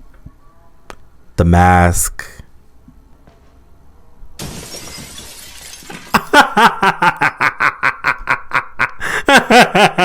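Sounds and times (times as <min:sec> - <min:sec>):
woman laughing: 0:06.2 - 0:10.0.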